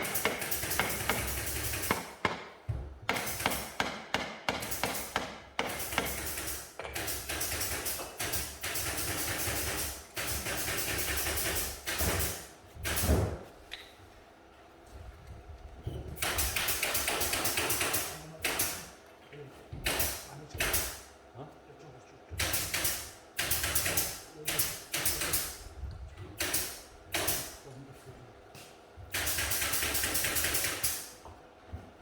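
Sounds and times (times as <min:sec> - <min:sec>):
rapid hammer taps: 0:00.0 - 0:11.6.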